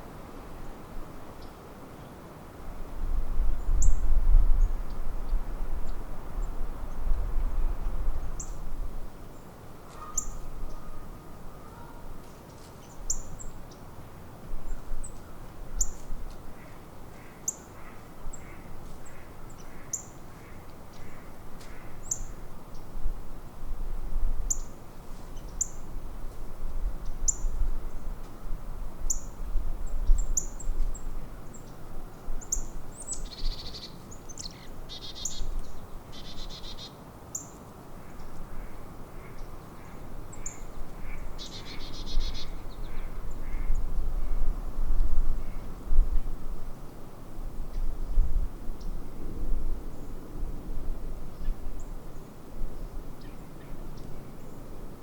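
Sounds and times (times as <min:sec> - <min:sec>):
bird chirping: 0:32.5 - 0:35.5, 0:36.1 - 0:37.5, 0:41.4 - 0:43.1.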